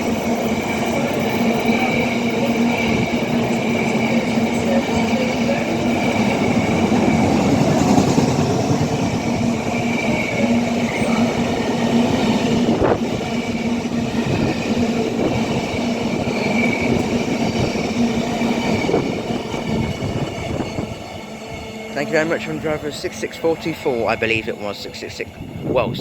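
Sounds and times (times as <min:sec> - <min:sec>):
freight train rolling over rails: 0:00.0 - 0:26.0.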